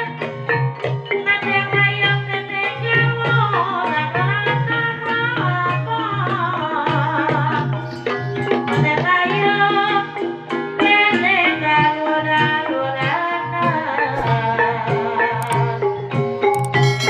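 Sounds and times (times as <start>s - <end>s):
person singing: 10.8s - 16.7s
metallophone notes: 13.6s - 17.0s
hand drum strokes: 14.0s - 17.0s.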